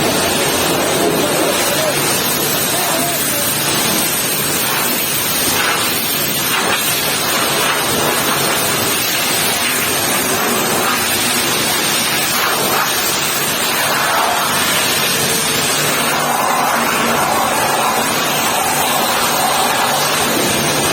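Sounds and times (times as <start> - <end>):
high-pressure water spray hissing: 0.0 - 20.9.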